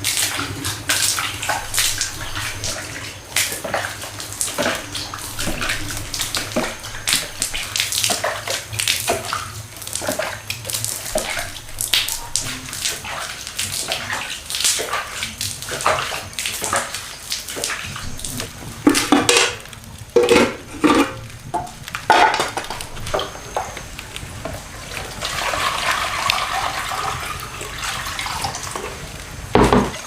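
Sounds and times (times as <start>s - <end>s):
water splashing and running: 0.0s - 30.0s
knocks and clatter: 20.2s - 23.7s.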